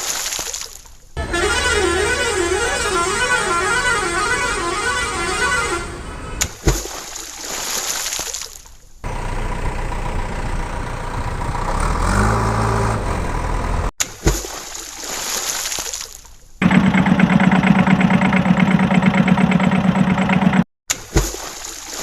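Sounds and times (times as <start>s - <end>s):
short horn toot: 1.2s - 6.4s.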